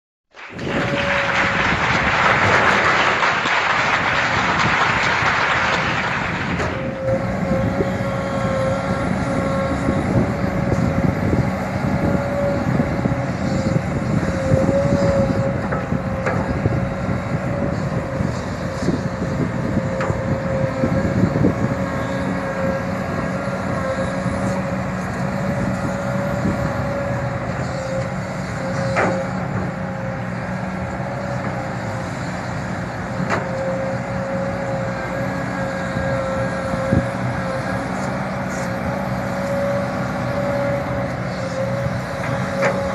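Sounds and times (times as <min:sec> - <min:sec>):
excavator diesel engine with whine: 0:00.3 - 0:42.9.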